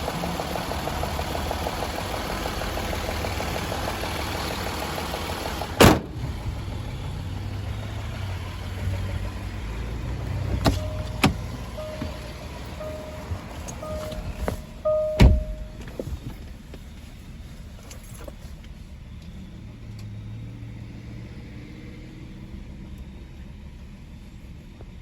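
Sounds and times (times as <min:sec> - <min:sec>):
chime-like beeps: 0:10.7 - 0:15.9
low steady hum: 0:10.7 - 0:16.2
loud sharp thump: 0:15.2 - 0:15.8.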